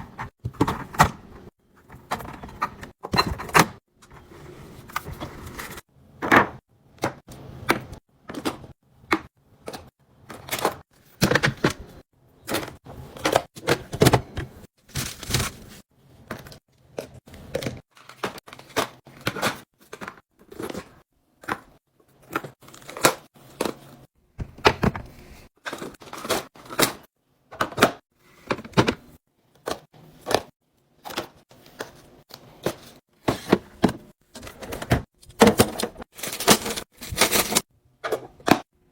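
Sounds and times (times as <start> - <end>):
food containers clicking and clunking: 0.0 - 38.7.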